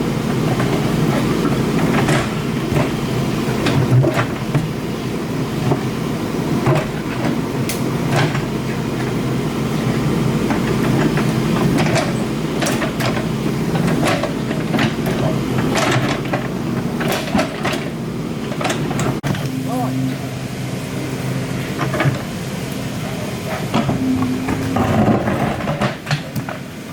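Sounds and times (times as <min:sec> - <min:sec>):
diesel engine running: 0:00.0 - 0:26.9
metallic clanks and knocks: 0:23.6 - 0:26.6.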